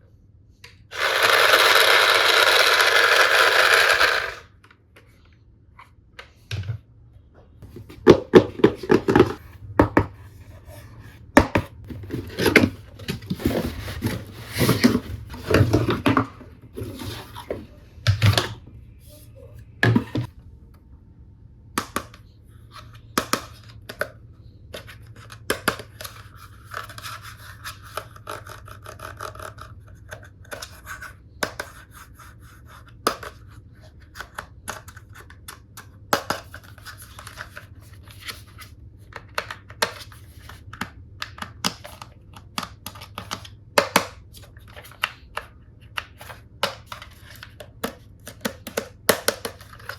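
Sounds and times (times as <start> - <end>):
plastic toy pieces clicking: 0.9 - 4.5.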